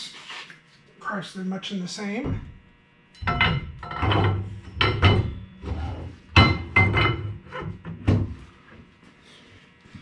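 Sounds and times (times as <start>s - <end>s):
metal knocks and clanks: 3.2s - 8.4s.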